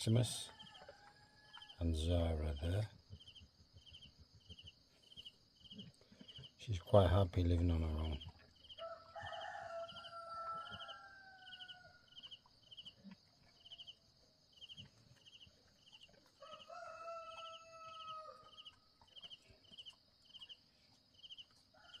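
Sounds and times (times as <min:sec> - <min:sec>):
rooster crowing: 0:08.8 - 0:12.2, 0:16.4 - 0:18.7, 0:21.7 - 0:22.0.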